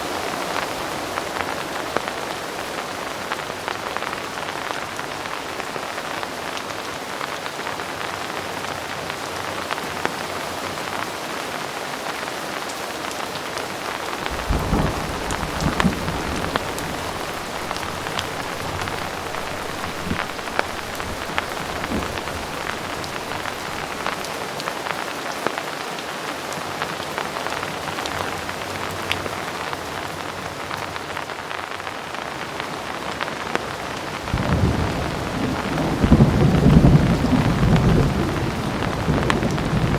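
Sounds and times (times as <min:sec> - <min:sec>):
heavy rain falling: 0:00.0 - 0:39.9
raindrops ticking: 0:14.1 - 0:24.4
thunder rumbling: 0:14.2 - 0:24.3, 0:34.3 - 0:39.9.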